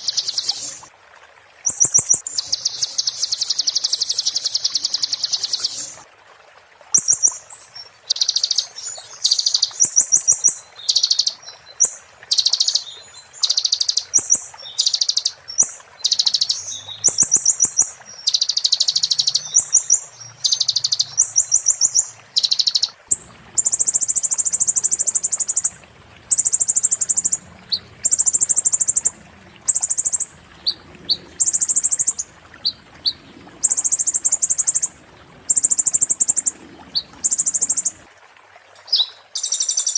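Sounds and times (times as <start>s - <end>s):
sunbird singing trills: 0.0s - 0.8s, 1.7s - 6.0s, 8.1s - 23.0s.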